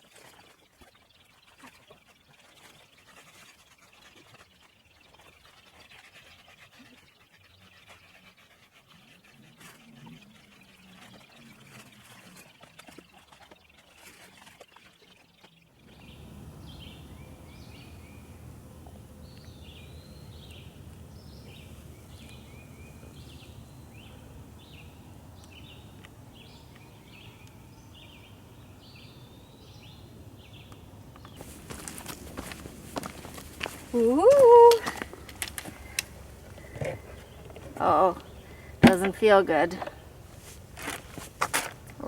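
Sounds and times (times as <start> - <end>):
low background rumble: 15.8 - 41.1
rustles and clicks: 31.2 - 42.0.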